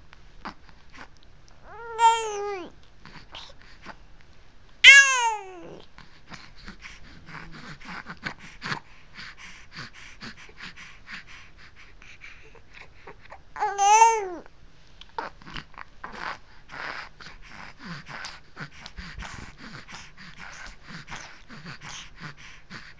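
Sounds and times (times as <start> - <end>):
baby babbling: 1.6 - 3.5, 4.8 - 5.8, 13.0 - 14.5
baby high-pitched squeal: 1.7 - 2.7, 4.8 - 5.8, 13.6 - 14.4.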